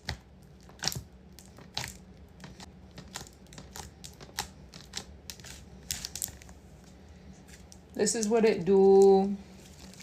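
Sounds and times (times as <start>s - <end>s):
slime clicking and crackling: 0.0s - 6.5s.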